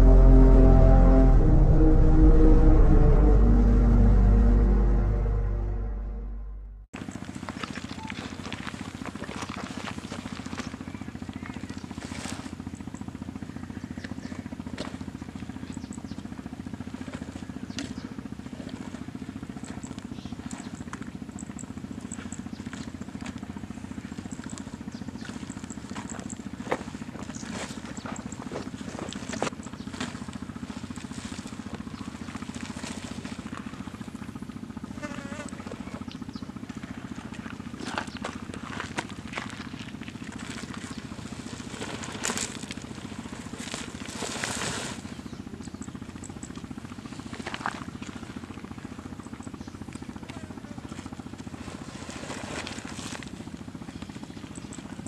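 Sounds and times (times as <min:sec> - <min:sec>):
low outdoor rumble: 0:00.0 - 0:55.0.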